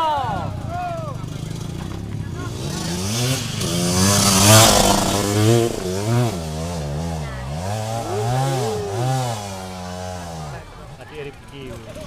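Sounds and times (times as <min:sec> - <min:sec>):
motorcycle engine revving hard: 0:01.2 - 0:10.8.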